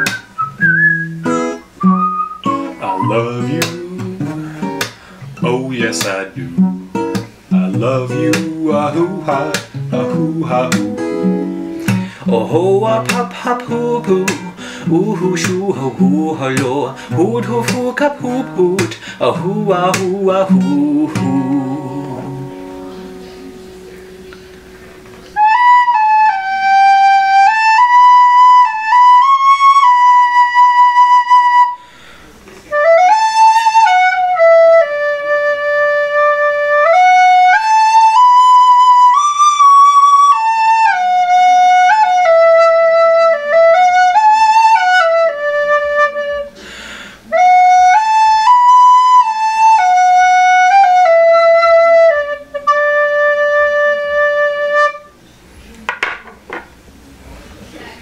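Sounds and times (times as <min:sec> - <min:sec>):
recorder melody: 0:00.0 - 0:31.9, 0:32.7 - 0:46.6, 0:47.2 - 0:55.2.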